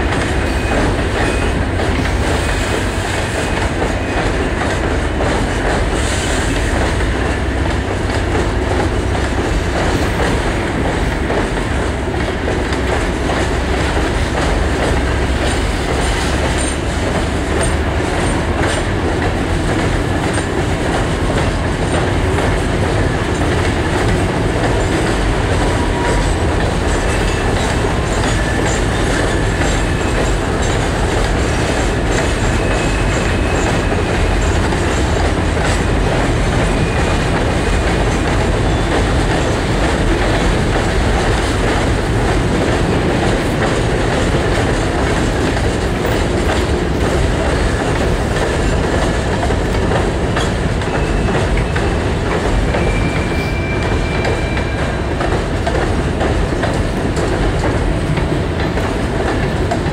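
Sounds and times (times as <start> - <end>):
clacking over rail joints: 0.0 - 59.9
steel wheels rumbling on rail: 0.0 - 59.9.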